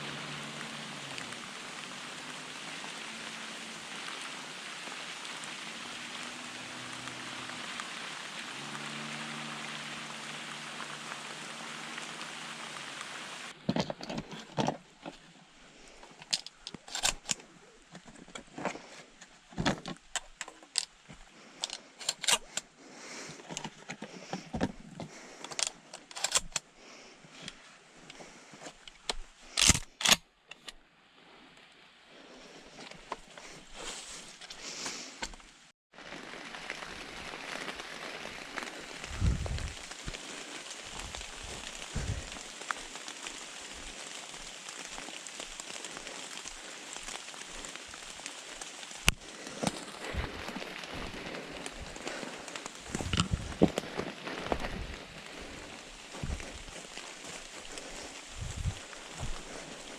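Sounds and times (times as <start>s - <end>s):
steady rain hiss: 0.0s - 13.6s, 14.8s - 30.2s, 30.9s - 59.9s
footsteps crunching on forest floor: 32.4s - 59.9s.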